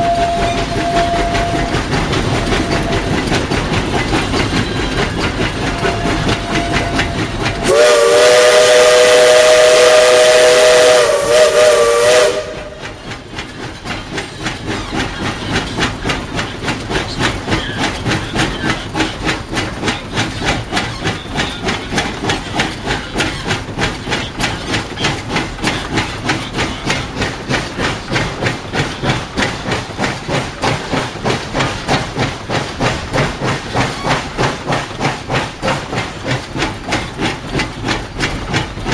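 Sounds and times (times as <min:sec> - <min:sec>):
steam locomotive whistle: 0:00.0 - 0:01.8, 0:05.7 - 0:13.0
steam engine exhaust chuffs: 0:00.0 - 0:38.9.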